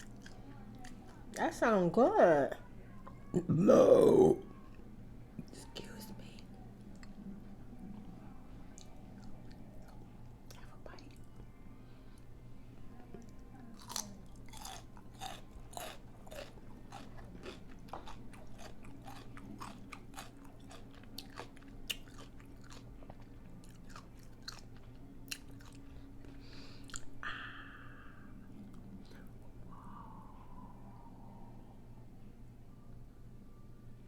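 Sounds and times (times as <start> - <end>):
crunchy chewing: 0.0 - 1.4, 8.7 - 11.4, 13.2 - 27.2.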